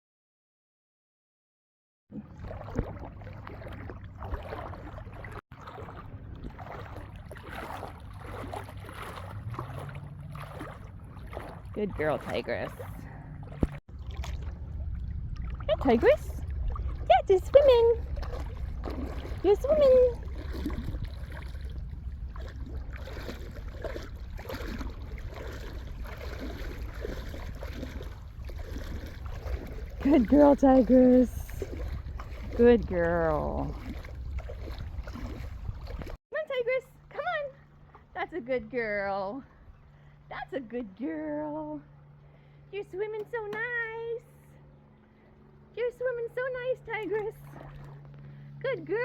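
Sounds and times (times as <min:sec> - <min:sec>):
water splashing and lapping: 0:02.1 - 0:49.0
steady low hum: 0:02.4 - 0:49.0
steady low rumble: 0:05.0 - 0:36.2.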